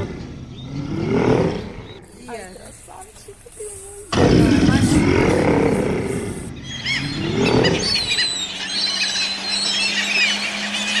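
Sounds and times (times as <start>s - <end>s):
small birds chirping: 1.6s - 4.1s, 6.4s - 11.0s
bear growling: 4.1s - 8.2s.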